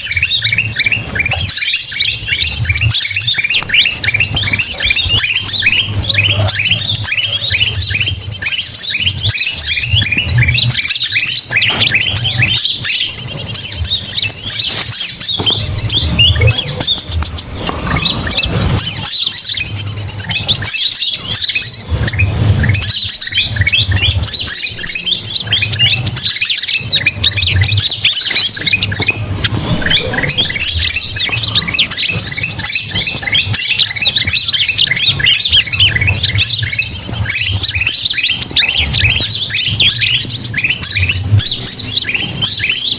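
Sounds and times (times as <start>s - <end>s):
chirping bird calls: 0.0s - 42.9s
fast high bird trill: 0.0s - 42.9s.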